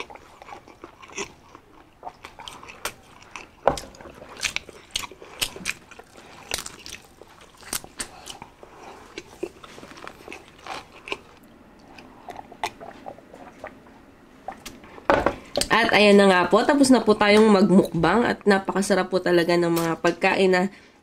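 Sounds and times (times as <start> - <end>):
crunching and chewing crispy food: 0.0 - 13.8.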